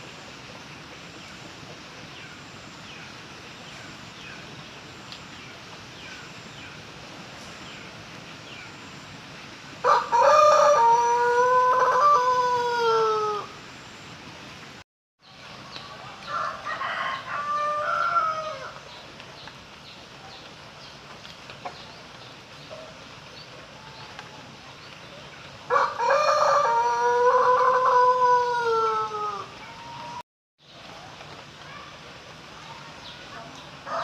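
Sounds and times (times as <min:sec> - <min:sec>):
rooster crowing: 0:09.8 - 0:13.6, 0:16.2 - 0:18.8, 0:25.7 - 0:29.6.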